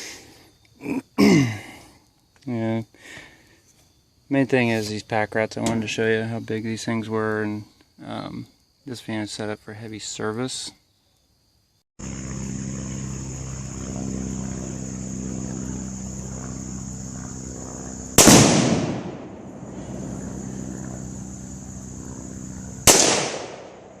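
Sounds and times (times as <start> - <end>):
steady low hum: 12.0 - 24.0.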